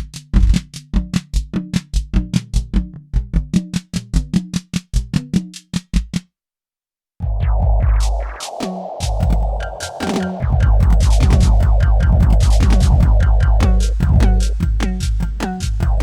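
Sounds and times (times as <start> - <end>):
synthesized drum kit rhythm: 7.2 - 16.0.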